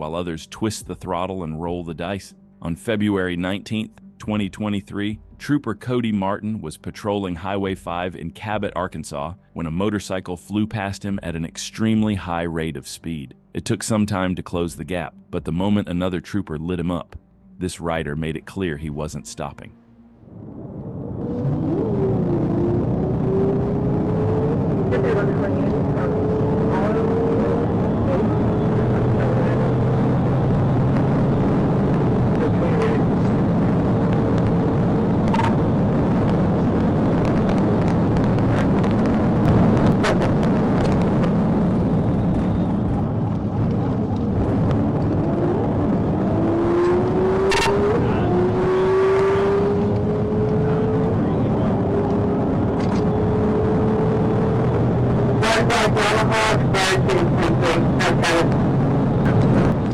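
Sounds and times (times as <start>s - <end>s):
road noise: 18.9s - 59.9s
car engine accelerating: 19.7s - 59.9s
wind noise: 20.2s - 59.9s.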